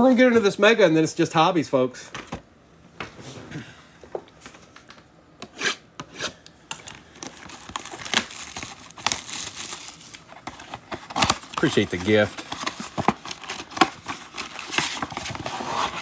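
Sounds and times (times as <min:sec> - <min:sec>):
cardboard and wrappers rustling: 0:06.8 - 0:16.0
wrapper ripping: 0:07.1 - 0:10.3, 0:11.0 - 0:16.0.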